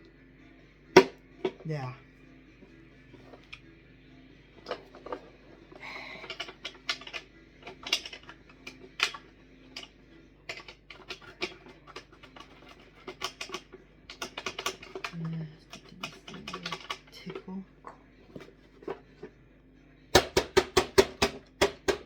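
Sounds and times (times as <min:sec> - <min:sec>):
plastic parts clicking into place: 0:06.2 - 0:09.9, 0:10.5 - 0:17.4.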